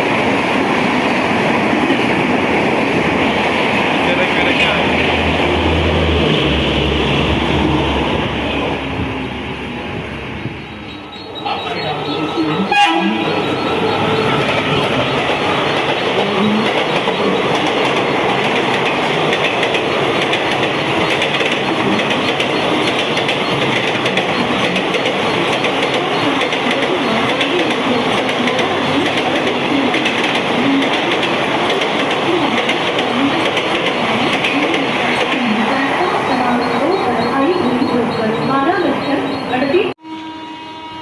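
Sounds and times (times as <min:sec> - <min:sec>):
train wheels rushing on rails: 0:00.0 - 0:40.0
clickety-clack over rail joints: 0:13.5 - 0:39.4.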